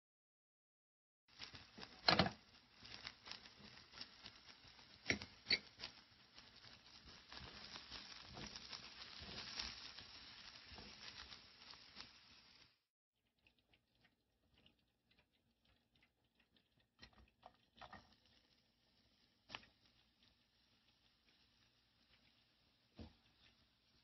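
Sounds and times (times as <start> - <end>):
onions sizzling in oil: 1.3 - 12.9, 17.7 - 24.0.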